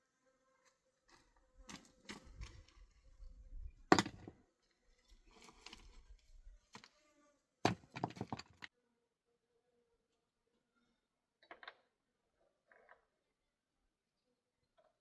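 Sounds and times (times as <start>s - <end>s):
knocks of hard objects: 3.9s - 4.4s, 7.7s - 8.7s.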